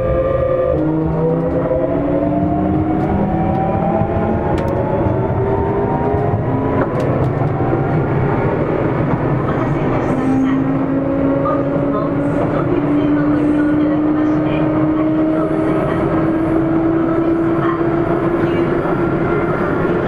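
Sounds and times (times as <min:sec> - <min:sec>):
train inverter and motors whining: 0:00.0 - 0:20.0
wheel and rail rumble: 0:00.0 - 0:20.0.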